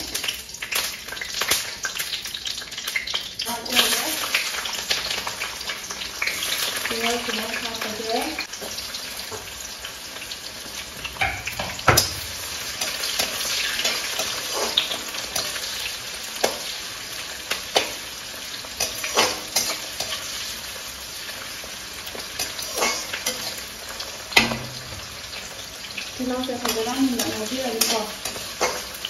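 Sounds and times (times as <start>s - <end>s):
onions sizzling in hot oil: 0.0s - 29.0s
metal spatula scraping pan: 11.2s - 15.8s, 22.1s - 23.7s, 26.2s - 29.0s.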